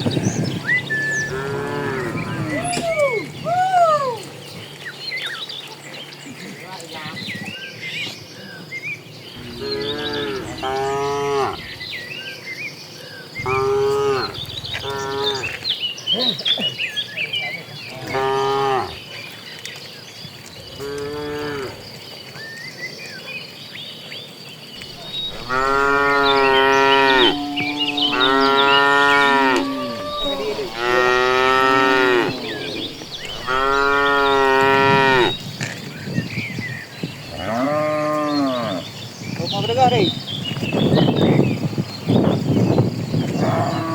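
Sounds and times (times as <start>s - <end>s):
birds chirping faintly: 0.0s - 43.9s
cattle mooing: 1.3s - 2.6s, 9.4s - 11.8s, 13.4s - 15.6s, 18.0s - 19.0s, 24.8s - 35.4s.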